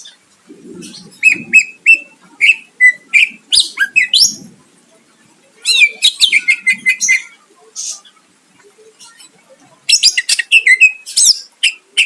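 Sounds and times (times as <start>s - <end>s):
bird whistling song: 0.8s - 4.4s, 5.6s - 7.3s, 9.9s - 12.0s.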